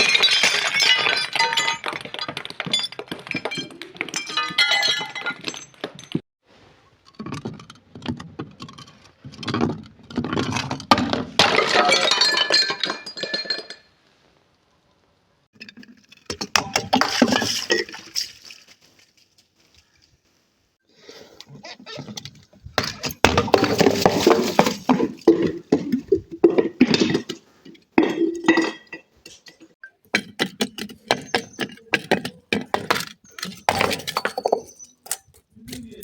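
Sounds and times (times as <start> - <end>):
glass breaking and crunching: 0.0 - 6.2, 32.5 - 35.3.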